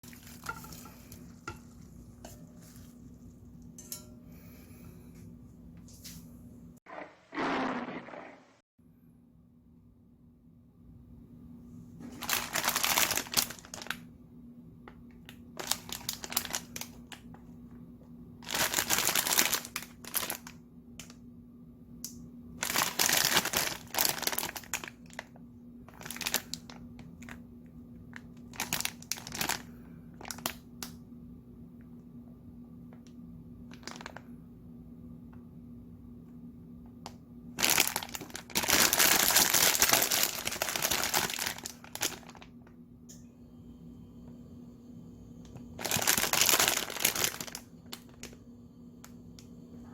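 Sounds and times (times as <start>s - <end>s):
steady low hum: 0.0s - 7.4s, 41.4s - 49.9s
plastic packet crinkling: 12.1s - 14.0s, 15.6s - 17.2s, 18.4s - 20.6s, 22.6s - 25.3s, 25.9s - 27.4s, 28.1s - 30.6s, 33.7s - 34.2s, 37.6s - 42.5s, 45.8s - 48.4s.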